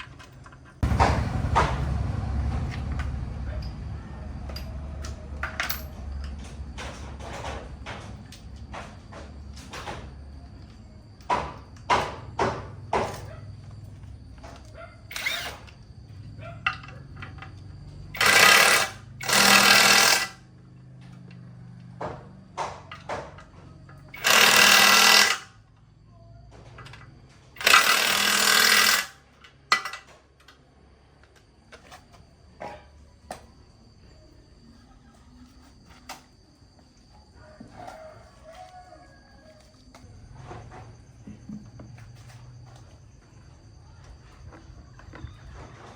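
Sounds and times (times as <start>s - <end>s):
power tool bursts: 15.1s - 15.7s, 18.1s - 20.4s, 24.1s - 25.5s, 27.6s - 29.2s.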